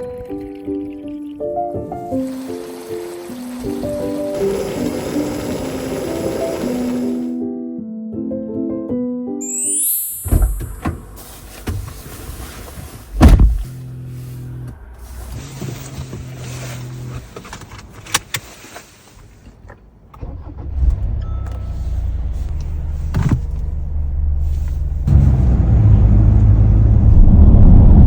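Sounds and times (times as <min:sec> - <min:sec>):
car engine starting and rumbling: 0:10.3 - 0:28.0.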